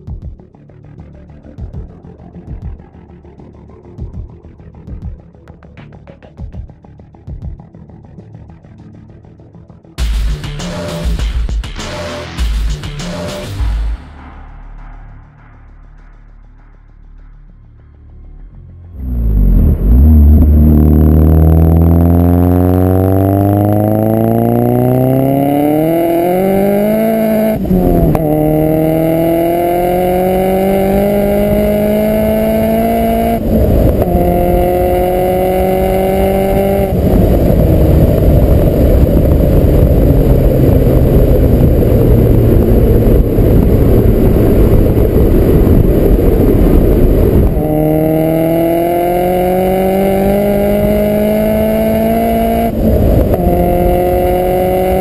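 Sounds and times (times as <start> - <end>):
loud rushing noise: 19.0 - 55.0
turbocharged car engine accelerating: 19.0 - 55.0.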